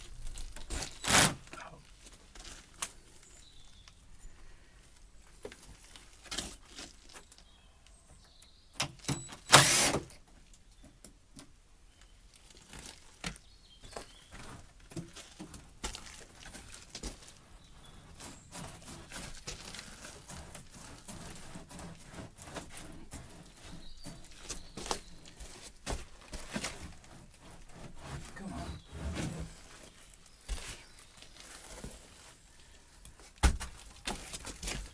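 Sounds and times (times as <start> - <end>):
timber knocking and scraping: 13.9 - 30.8.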